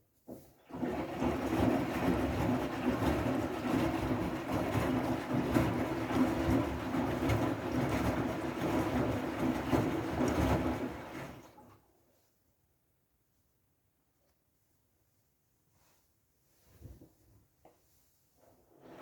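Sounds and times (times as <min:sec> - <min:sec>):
water sloshing inside drum: 0:00.3 - 0:11.8
washing machine drum rumbling: 0:00.7 - 0:11.6.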